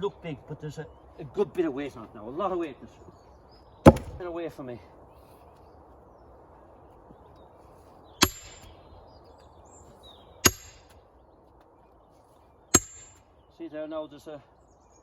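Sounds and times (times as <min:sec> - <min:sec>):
sledgehammer striking steel wedge: 0:03.9 - 0:04.2, 0:08.2 - 0:08.7, 0:10.4 - 0:10.9, 0:12.8 - 0:13.2.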